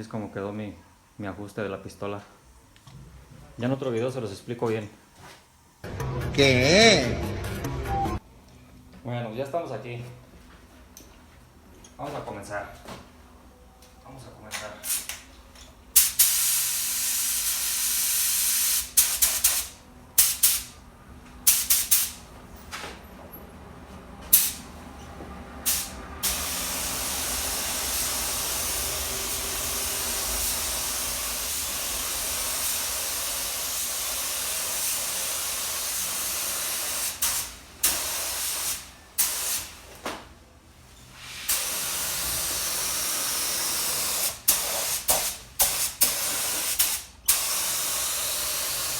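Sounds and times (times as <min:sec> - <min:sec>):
paint spray gun hissing: 0:16.0 - 0:20.8, 0:21.5 - 0:22.3, 0:24.3 - 0:24.7, 0:25.6 - 0:39.8, 0:41.2 - 0:48.9.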